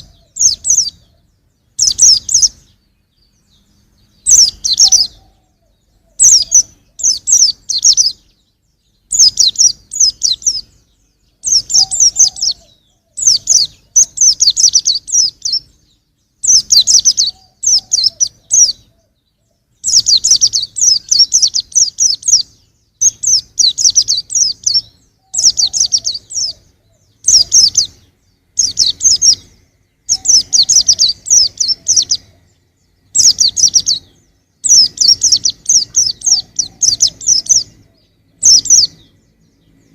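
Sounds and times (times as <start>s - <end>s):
bird high twittering: 0.0s - 39.9s.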